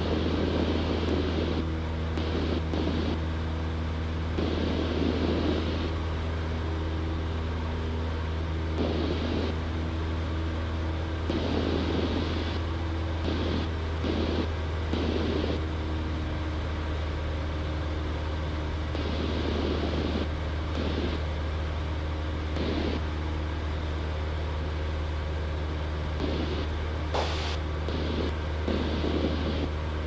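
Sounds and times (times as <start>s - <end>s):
airplane engine and propeller drone: 0.0s - 30.0s
short rushing bursts of noise: 27.2s - 29.0s.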